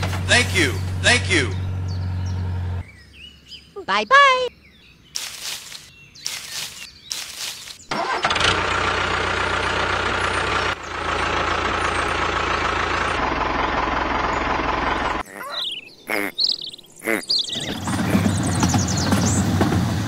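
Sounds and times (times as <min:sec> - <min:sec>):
heavy diesel engine running: 0:00.0 - 0:02.8, 0:07.9 - 0:15.2, 0:17.6 - 0:20.0.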